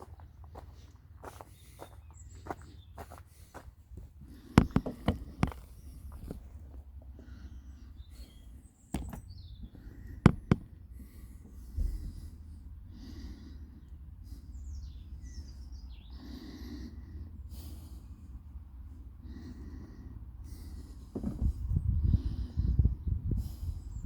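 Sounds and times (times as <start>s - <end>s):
low steady rumble: 3.8s - 24.0s
sharp knocks and clatters: 4.3s - 6.5s, 8.9s - 10.8s.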